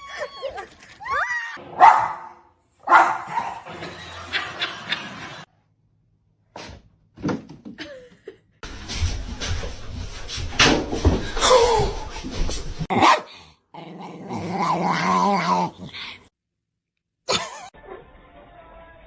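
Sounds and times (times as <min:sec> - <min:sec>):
dog barking: 0:01.7 - 0:03.7, 0:12.9 - 0:13.4.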